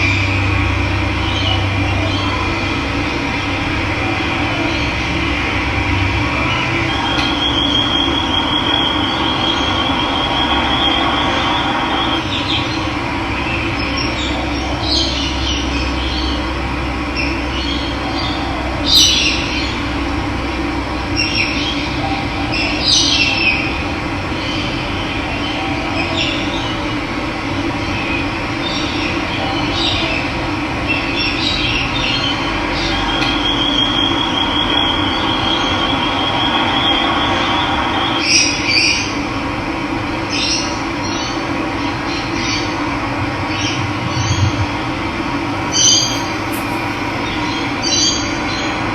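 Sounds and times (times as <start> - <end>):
birds chirping: 45.6 - 48.4
bird trilling: 45.7 - 48.2.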